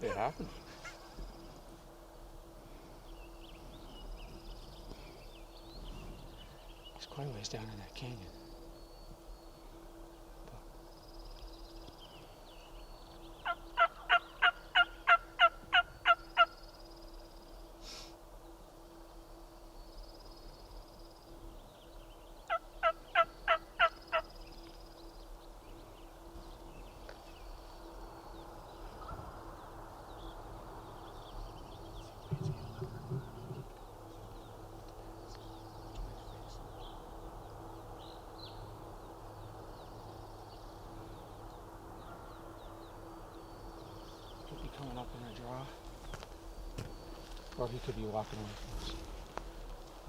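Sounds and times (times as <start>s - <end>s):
turkey yelps: 13.4s - 16.5s.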